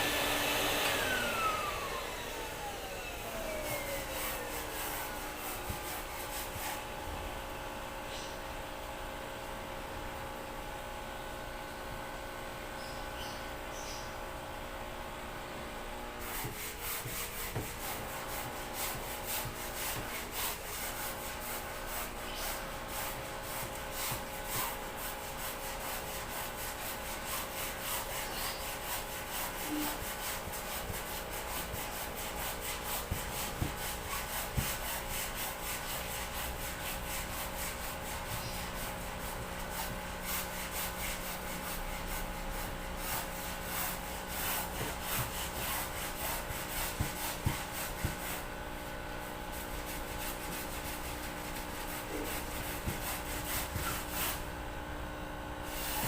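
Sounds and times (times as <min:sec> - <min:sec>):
rapid rubbing strokes on a surface: 0:03.2 - 0:07.0, 0:16.2 - 0:54.5, 0:55.6 - 0:56.0.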